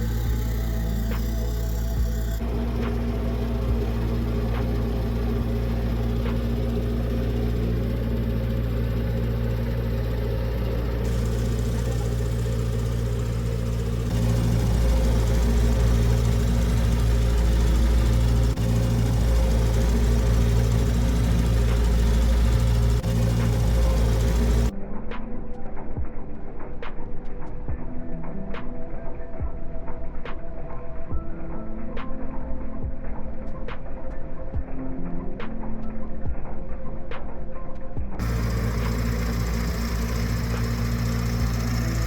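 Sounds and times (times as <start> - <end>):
boat engine running: 0.0 - 24.7, 38.2 - 42.0.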